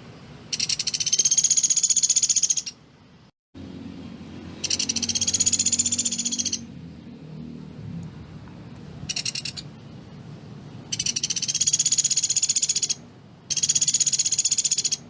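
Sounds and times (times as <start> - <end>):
woodpecker rattling trills: 0.5 - 2.8, 4.6 - 6.7, 9.1 - 9.7, 10.9 - 15.0.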